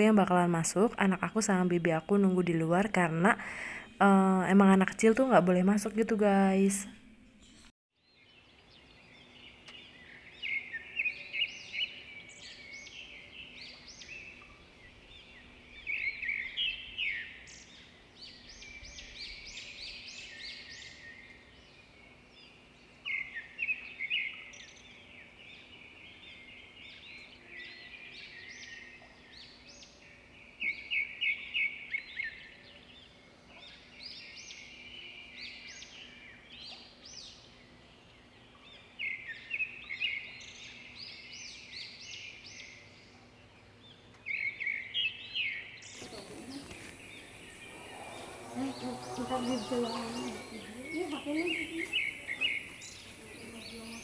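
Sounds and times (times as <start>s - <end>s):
birds chirping and calling: 45.8s - 54.0s
faint steady hum: 45.9s - 54.0s.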